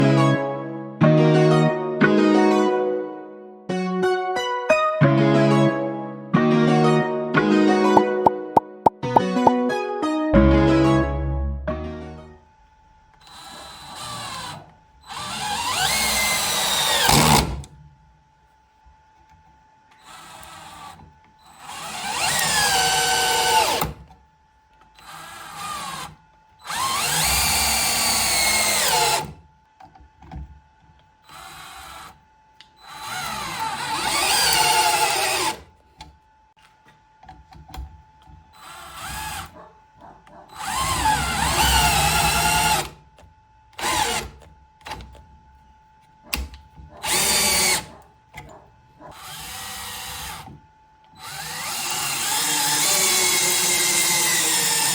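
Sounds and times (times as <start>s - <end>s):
cordless drill motor whining: 13.2s - 17.5s, 19.9s - 23.9s, 25.0s - 29.3s, 31.2s - 35.6s, 38.5s - 39.6s, 40.5s - 43.0s, 43.8s - 44.5s, 47.0s - 47.9s, 49.2s - 54.9s.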